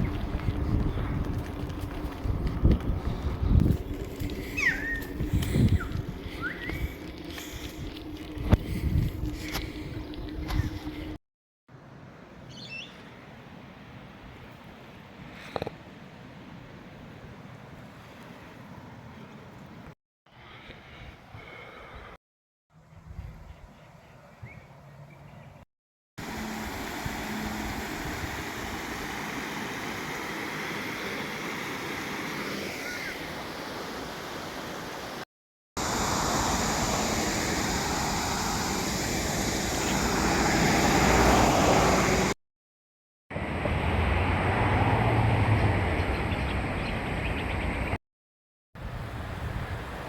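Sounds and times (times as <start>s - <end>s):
bicycle riding noise: 0.0s - 11.2s, 35.8s - 42.4s
rushing wind: 0.0s - 11.2s, 26.2s - 34.8s, 35.8s - 42.4s, 43.3s - 48.0s, 48.8s - 50.0s.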